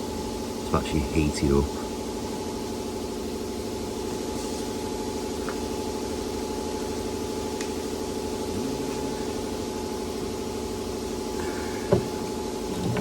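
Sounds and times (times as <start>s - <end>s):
machine droning hum: 0.0s - 13.0s
thin steady whine: 0.0s - 13.0s.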